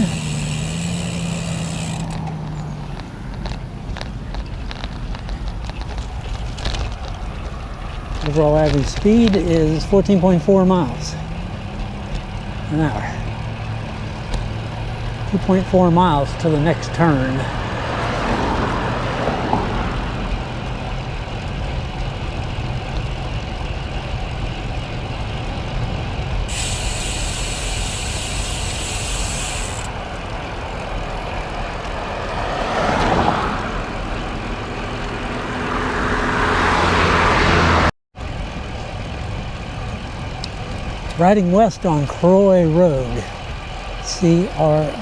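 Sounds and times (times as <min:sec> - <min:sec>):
vehicles passing: 0:00.0 - 0:45.0
wind and road noise: 0:00.0 - 0:45.0
high hiss: 0:26.5 - 0:29.9.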